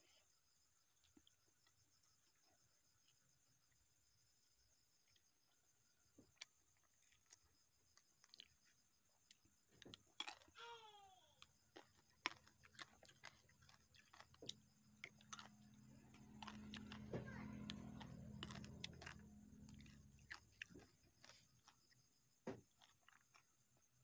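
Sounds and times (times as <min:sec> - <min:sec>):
chewing with soft crunches: 0:00.0 - 0:24.0
low steady hum: 0:10.6 - 0:22.4.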